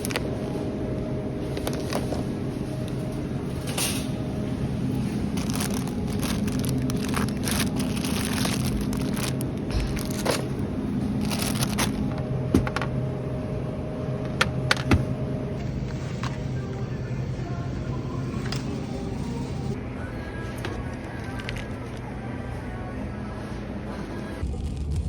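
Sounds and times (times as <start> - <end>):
vehicle engine and road hum: 0.0 - 19.8
crackling and rustling: 5.0 - 12.8.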